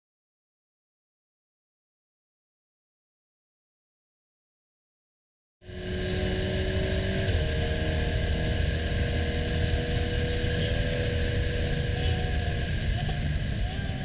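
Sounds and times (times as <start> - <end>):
car engine running hard: 5.6 - 14.0.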